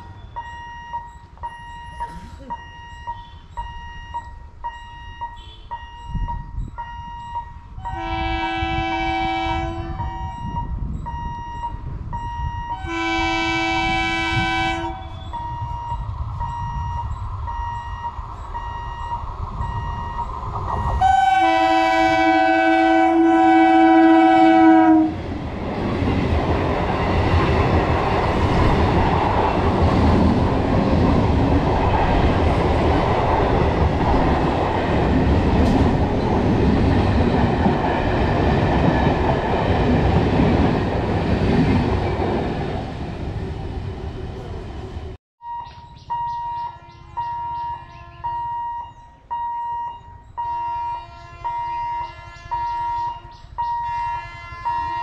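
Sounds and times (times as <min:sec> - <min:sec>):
train rumbling past: 0:00.0 - 0:45.2
train horn blasts: 0:05.4 - 0:05.8, 0:07.8 - 0:10.6, 0:12.7 - 0:15.7, 0:20.9 - 0:25.2, 0:46.6 - 0:48.9, 0:50.4 - 0:55.0.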